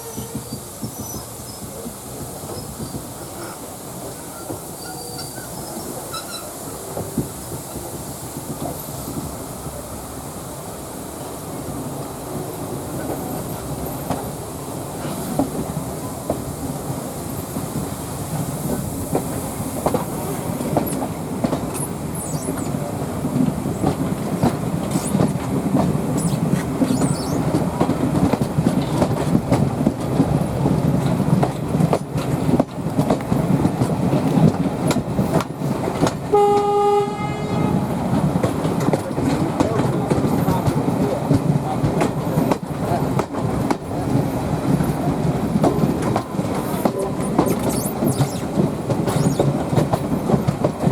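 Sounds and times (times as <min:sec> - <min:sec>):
train wheels rumbling on rails: 0:00.0 - 0:50.9
steam whistle: 0:36.3 - 0:37.8.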